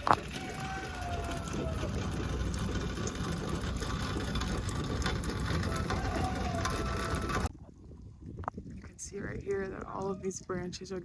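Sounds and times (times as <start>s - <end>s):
scattered crackles and ticks: 0.0s - 7.5s
wind rumble on microphone: 0.0s - 11.0s.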